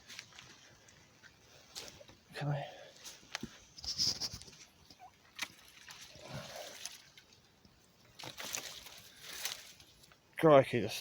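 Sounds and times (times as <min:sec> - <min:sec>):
stream water trickling and splashing: 0:04.1 - 0:10.4.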